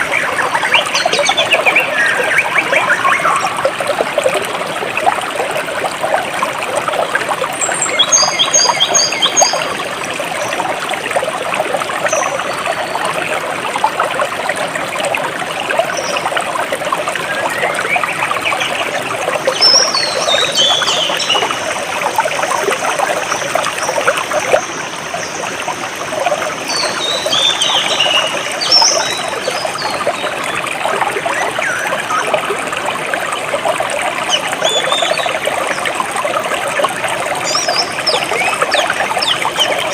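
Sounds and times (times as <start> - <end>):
birds chirping: 0.0 - 3.6, 26.7 - 30.3
stream water trickling: 0.0 - 39.9.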